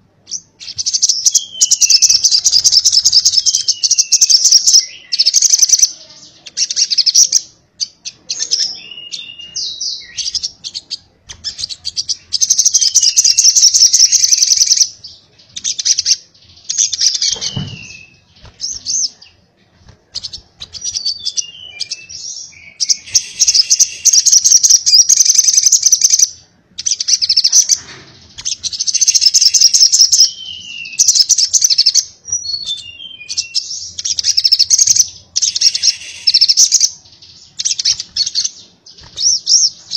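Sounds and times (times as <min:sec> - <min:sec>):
bird chattering trills: 0:20.2 - 0:38.6.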